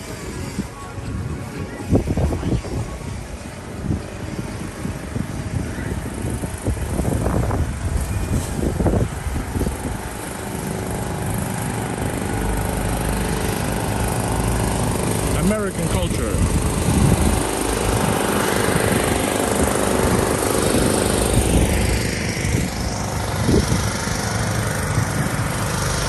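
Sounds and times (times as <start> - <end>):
faint voices: 0.0 - 4.4
motor engine running: 0.0 - 26.0
street noise: 0.0 - 26.0.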